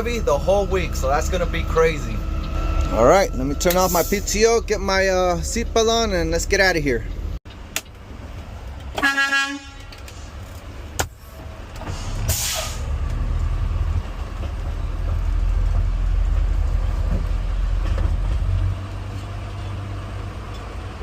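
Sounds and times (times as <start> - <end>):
truck diesel engine rumbling: 0.0 - 21.0
air brakes hissing: 3.6 - 4.4, 11.8 - 13.0.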